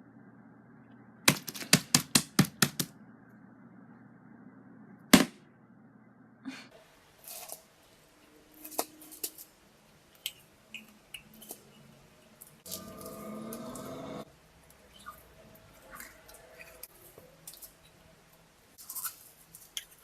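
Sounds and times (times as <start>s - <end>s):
slime squelching: 7.0s - 20.0s.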